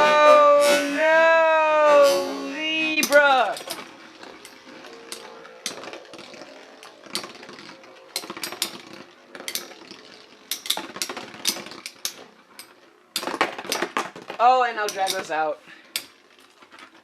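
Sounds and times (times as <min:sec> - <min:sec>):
spinning tops whirring: 0:00.9 - 0:15.4
metal tops clicking together: 0:14.8 - 0:16.2.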